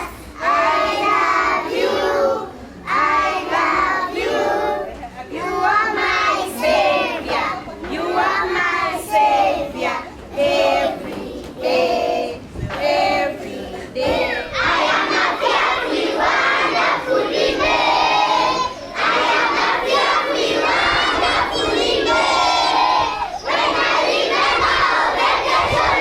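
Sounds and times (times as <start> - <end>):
children chanting loudly: 14.2 - 26.0.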